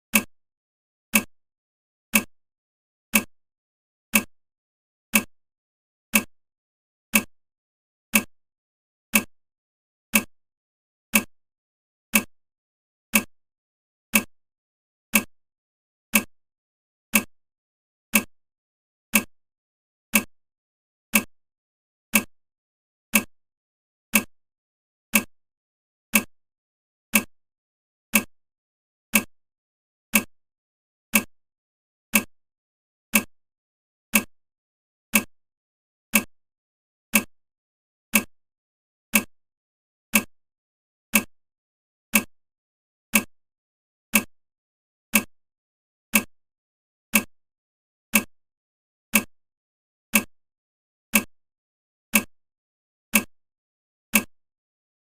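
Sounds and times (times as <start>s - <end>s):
timer ticking: 0.1s - 0.3s, 1.1s - 1.3s, 2.1s - 2.3s, 3.1s - 3.3s, 4.1s - 4.3s, 5.1s - 5.3s, 6.1s - 6.3s, 7.1s - 7.3s, 8.1s - 8.3s, 9.1s - 9.3s, 10.1s - 10.3s, 11.1s - 11.3s, 12.1s - 12.3s, 13.1s - 13.3s, 14.1s - 14.3s, 15.1s - 15.3s, 16.1s - 16.3s, 17.1s - 17.3s, 18.1s - 18.3s, 19.1s - 19.3s, 20.1s - 20.3s, 21.1s - 21.3s, 22.1s - 22.3s, 23.1s - 23.3s, 24.1s - 24.3s, 25.1s - 25.3s, 26.1s - 26.3s, 27.1s - 27.3s, 28.1s - 28.3s, 29.1s - 29.3s, 30.1s - 30.3s, 31.1s - 31.3s, 32.1s - 32.3s, 33.1s - 33.3s, 34.1s - 34.3s, 35.1s - 35.3s, 36.1s - 36.3s, 37.1s - 37.3s, 38.1s - 38.3s, 39.1s - 39.3s, 40.1s - 40.3s, 41.1s - 41.3s, 42.1s - 42.3s, 43.1s - 43.3s, 44.1s - 44.3s, 45.1s - 45.3s, 46.1s - 46.3s, 47.1s - 47.3s, 48.1s - 48.3s, 49.1s - 49.3s, 50.1s - 50.3s, 51.1s - 51.3s, 52.1s - 52.3s, 53.1s - 53.3s, 54.1s - 54.3s.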